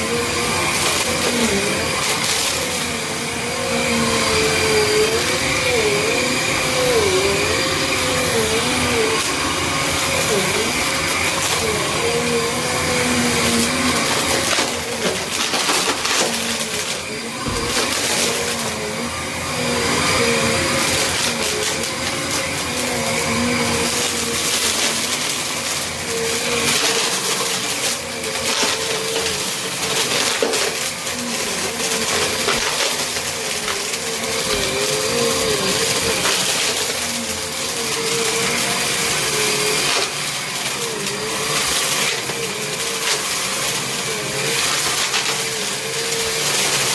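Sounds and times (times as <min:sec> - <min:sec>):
vacuum cleaner motor running: 0:00.0 - 0:46.9
debris crunching and rattling: 0:14.1 - 0:18.6.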